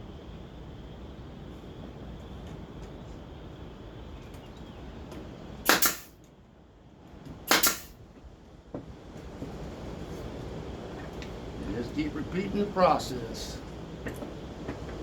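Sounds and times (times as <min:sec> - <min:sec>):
brad nailer firing: 0:05.6 - 0:06.2, 0:07.5 - 0:08.0.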